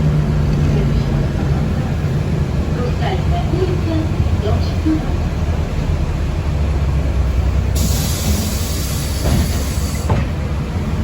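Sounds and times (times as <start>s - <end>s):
bus rumbling from inside: 0.0s - 11.0s
hiss of air: 7.8s - 10.1s.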